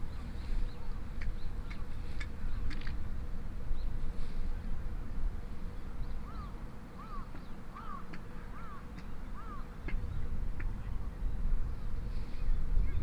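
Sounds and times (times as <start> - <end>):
bird calling: 5.9 - 10.3.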